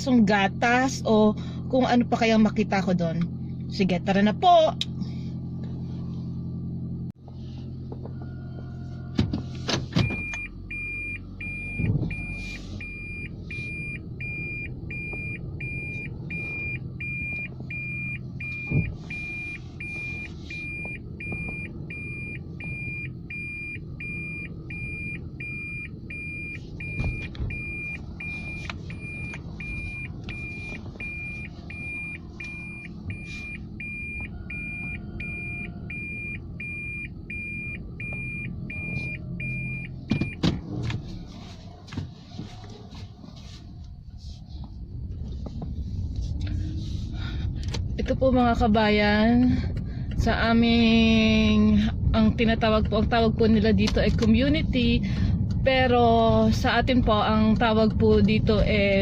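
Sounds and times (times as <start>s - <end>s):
car interior hum: 0.0s - 59.0s
car warning chime beeping: 10.0s - 40.4s.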